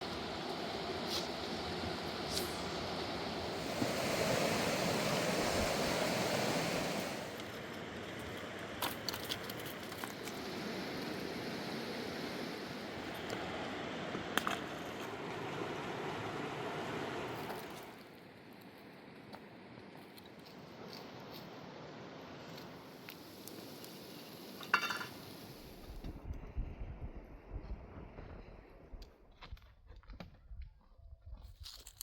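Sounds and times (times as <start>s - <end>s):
river rushing: 0.0s - 7.5s, 14.9s - 18.0s.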